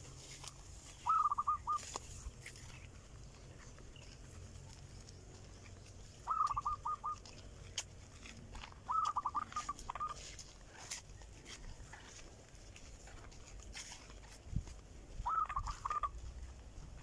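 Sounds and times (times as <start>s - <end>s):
bird calling repeated notes: 0.9s - 2.1s, 6.0s - 7.5s, 8.8s - 10.3s, 15.2s - 16.2s.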